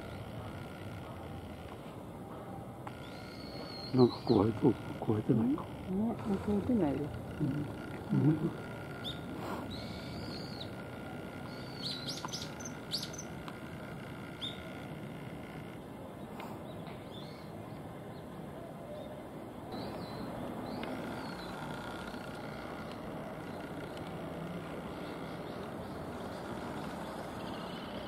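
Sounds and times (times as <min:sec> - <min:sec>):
low background hum: 0:00.0 - 0:28.0
bird chirps: 0:02.9 - 0:04.7, 0:09.0 - 0:10.8, 0:11.4 - 0:13.4, 0:18.9 - 0:22.3.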